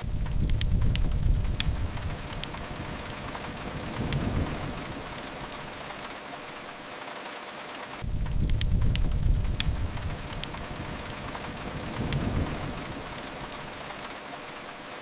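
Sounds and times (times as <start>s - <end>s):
deep low rumble: 0.0s - 5.8s, 8.0s - 13.9s
rain hiss: 0.0s - 15.0s
wood fire crackling: 0.0s - 15.0s.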